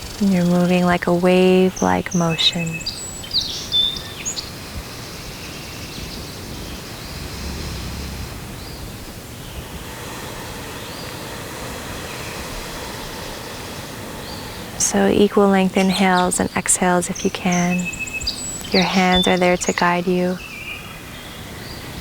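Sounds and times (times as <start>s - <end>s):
steady background hiss: 0.0s - 22.0s
high bird chirps: 10.6s - 21.3s.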